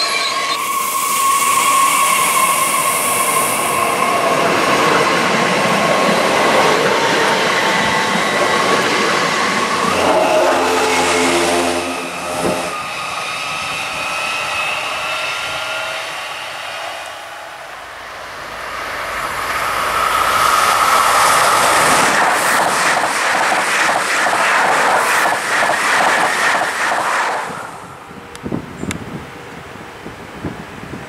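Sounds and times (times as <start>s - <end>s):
train rising whine: 0.0s - 30.9s
passenger train passing: 0.0s - 31.0s.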